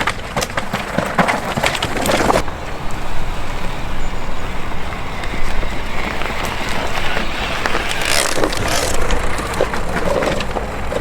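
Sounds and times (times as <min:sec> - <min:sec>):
tyre rumble on dirt: 0:00.0 - 0:02.8
wind buffeting camera: 0:00.0 - 0:11.0.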